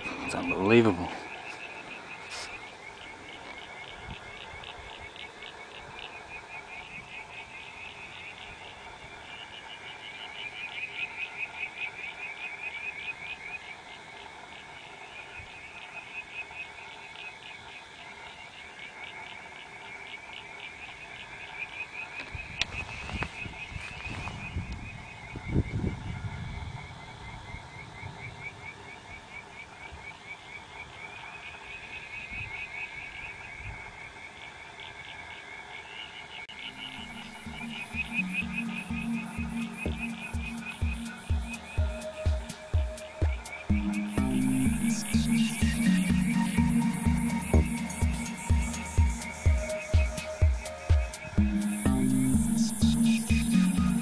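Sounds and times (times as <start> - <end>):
frogs chirping: 0.0 - 23.8, 24.4 - 54.0
electronic music with deep bass: 36.5 - 54.0.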